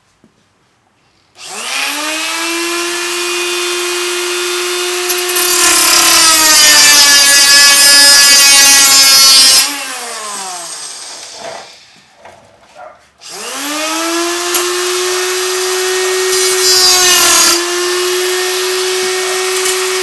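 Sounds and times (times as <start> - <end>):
cutoff tool whining: 1.4 - 11.8, 13.2 - 20.0
wheel cutting sheet metal: 4.3 - 11.9, 13.3 - 20.0.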